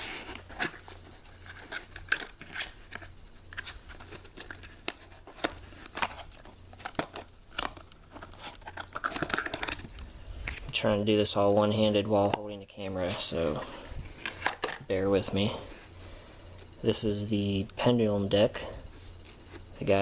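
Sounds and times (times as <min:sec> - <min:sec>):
trading cards handled by hand: 0:00.0 - 0:10.8.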